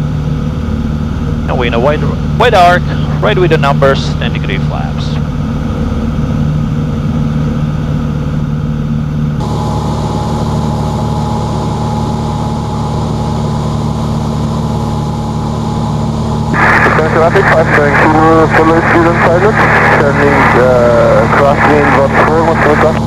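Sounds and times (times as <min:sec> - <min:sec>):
propeller aircraft engine drone: 0:00.0 - 0:23.0
steady higher tone: 0:09.0 - 0:23.0.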